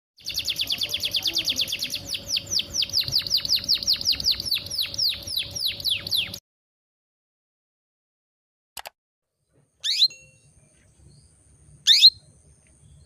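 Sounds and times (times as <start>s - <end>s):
canary chirping: 0.2s - 6.4s, 9.8s - 10.2s, 11.8s - 12.3s.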